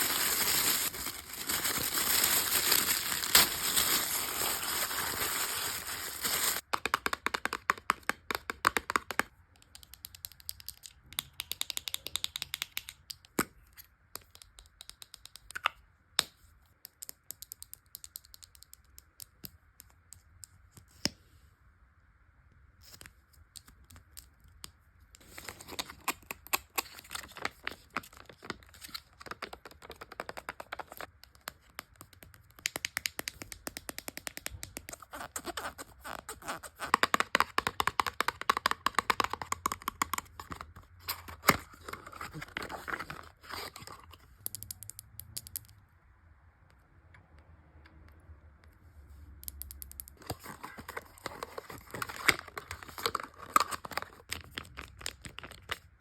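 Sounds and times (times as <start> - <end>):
packaging taps and clicks: 0.0 - 13.5, 36.8 - 45.0, 49.7 - 55.8.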